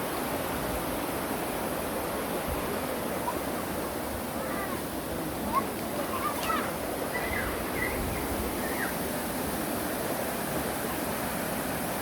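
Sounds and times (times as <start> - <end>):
stream flowing: 0.0 - 12.0.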